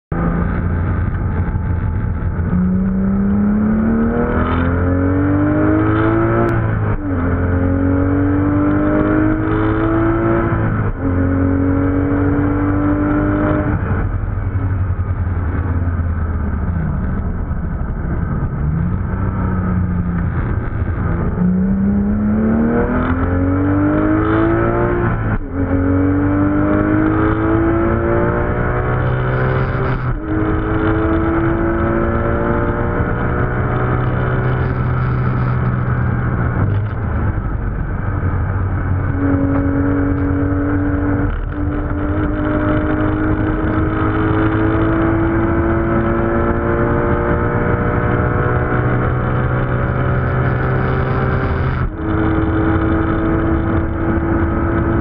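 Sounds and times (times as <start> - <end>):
car engine revving through gears: 0.1 - 14.2, 18.4 - 55.0.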